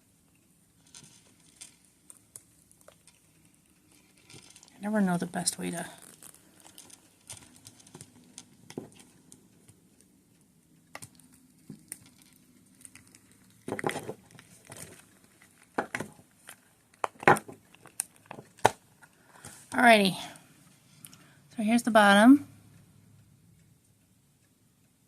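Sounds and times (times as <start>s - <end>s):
resin casting crinkling and rubbing: 0.2s - 19.8s.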